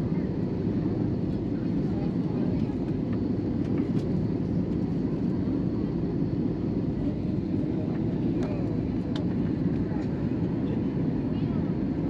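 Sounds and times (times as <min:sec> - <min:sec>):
jet engine and airflow rumble: 0:00.0 - 0:12.0.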